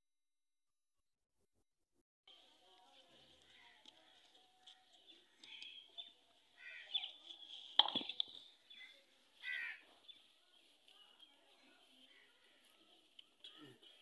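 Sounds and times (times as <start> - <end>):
crow-like caws: 9.4 - 9.8.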